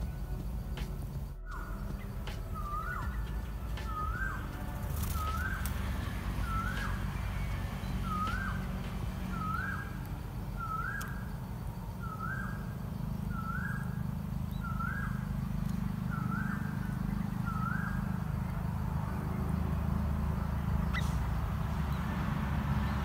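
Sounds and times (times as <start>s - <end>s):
steady low rumble: 0.0s - 23.0s
bird whistling call: 1.4s - 18.4s, 20.5s - 21.3s.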